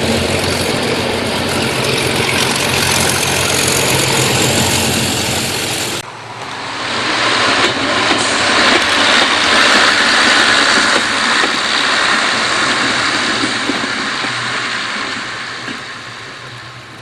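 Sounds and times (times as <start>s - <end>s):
model train engine passing: 0.0s - 17.0s.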